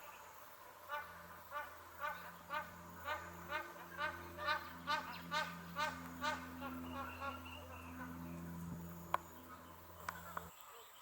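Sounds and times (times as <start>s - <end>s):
geese honking: 0.8s - 10.5s.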